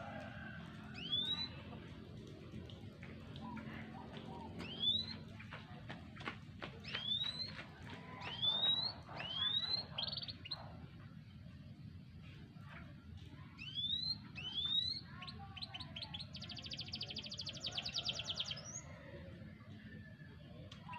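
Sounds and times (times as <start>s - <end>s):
canary singing: 1.0s - 1.6s, 4.6s - 5.2s, 6.8s - 7.6s, 8.2s - 10.8s, 13.6s - 18.9s.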